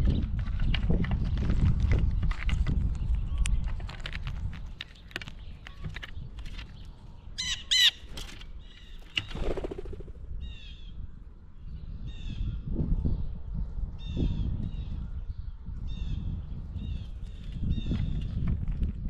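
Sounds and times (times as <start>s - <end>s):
blue jays calling: 7.4s - 10.0s.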